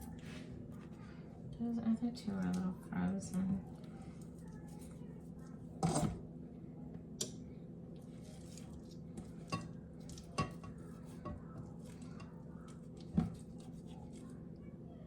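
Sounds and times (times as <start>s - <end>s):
low steady hum: 0.0s - 15.0s
utensils and dishes clinking: 9.4s - 11.4s.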